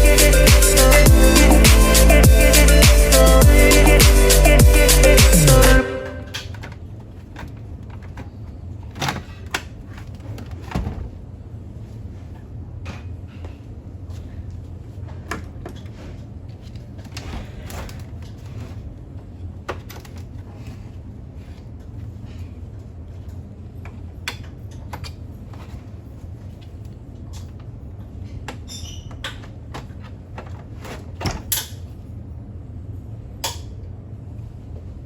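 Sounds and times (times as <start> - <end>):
steady low hum: 0.0 - 6.4.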